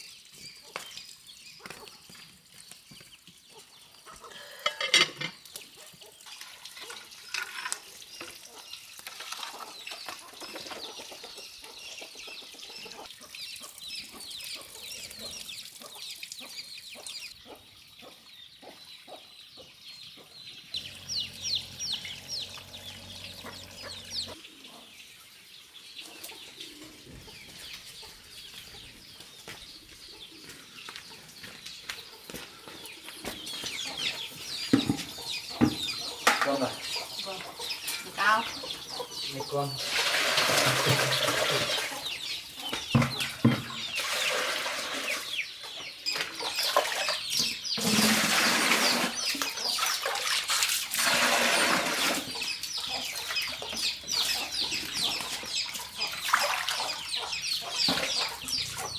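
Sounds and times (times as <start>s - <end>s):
chickens peeping: 0.0s - 7.2s, 7.8s - 50.6s, 51.3s - 58.9s
low steady hum: 20.8s - 24.4s.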